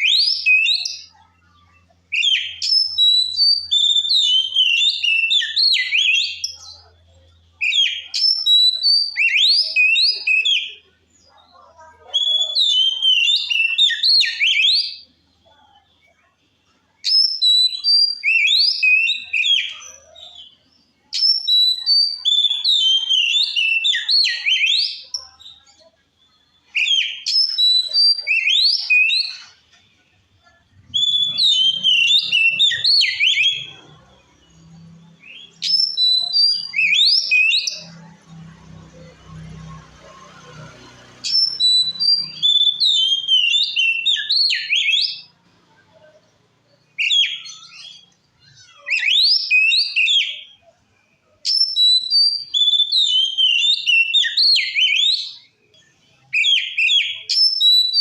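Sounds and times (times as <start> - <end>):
bird singing whistled phrases: 2.1 - 6.8, 12.2 - 15.0, 17.0 - 20.5, 21.2 - 25.6, 30.8 - 33.9, 35.2 - 38.0, 41.3 - 45.3, 47.0 - 50.6, 51.5 - 55.5, 56.4 - 58.0.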